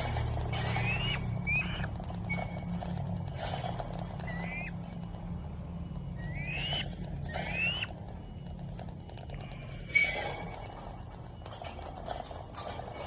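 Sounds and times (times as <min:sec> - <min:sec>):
low hum: 0:00.0 - 0:13.0
bird whistled calls: 0:00.6 - 0:02.8, 0:04.2 - 0:04.8, 0:06.0 - 0:08.0.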